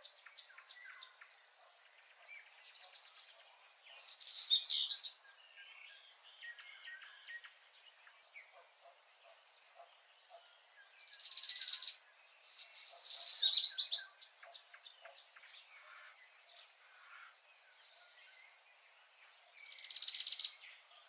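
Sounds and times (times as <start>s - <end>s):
faint bird chirps: 0.0s - 21.0s
songbird trilling: 4.0s - 5.4s, 11.0s - 15.1s, 19.6s - 20.6s.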